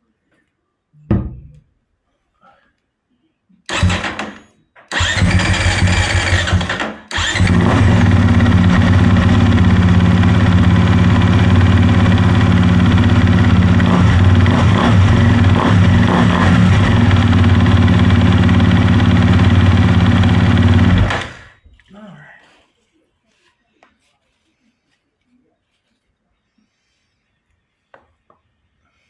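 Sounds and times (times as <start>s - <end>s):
motorcycle engine starting and idling: 3.7s - 21.6s.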